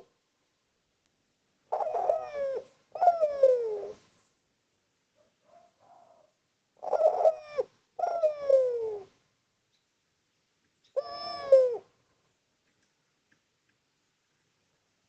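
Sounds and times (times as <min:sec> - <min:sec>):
dove cooing: 0:01.7 - 0:04.0, 0:05.2 - 0:09.2, 0:10.9 - 0:12.0.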